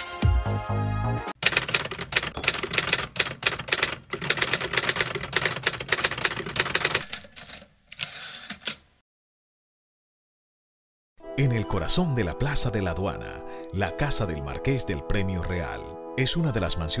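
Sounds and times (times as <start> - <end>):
typewriter keys clacking: 1.4 - 8.8.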